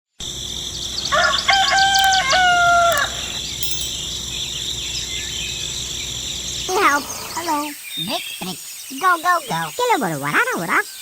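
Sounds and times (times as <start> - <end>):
insects droning: 0.2 - 9.8
rooster crowing: 1.1 - 3.1.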